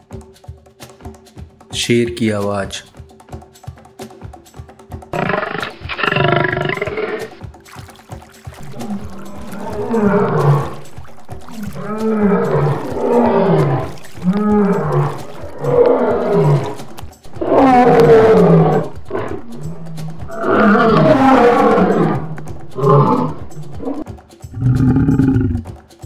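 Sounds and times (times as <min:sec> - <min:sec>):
lion roaring: 0:05.2 - 0:07.4, 0:08.6 - 0:24.0, 0:24.6 - 0:25.7.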